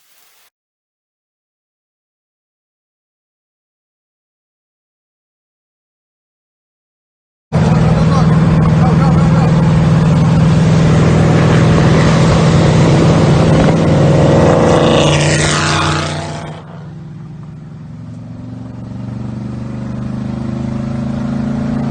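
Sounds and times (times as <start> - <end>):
motor engine running: 7.6 - 14.4.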